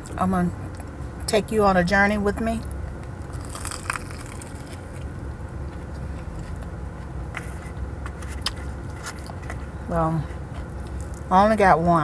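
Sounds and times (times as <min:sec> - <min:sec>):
low rumble inside a car: 0:00.0 - 0:12.0
chewing with crunchy clicks: 0:02.6 - 0:11.3.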